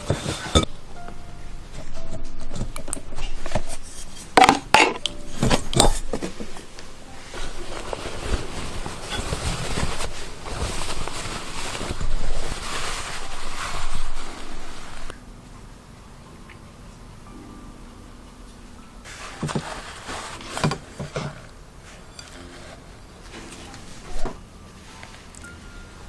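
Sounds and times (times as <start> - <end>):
utensils clinking against dishes: 0.0 - 0.8, 2.7 - 10.1
soft scraping: 19.1 - 26.0.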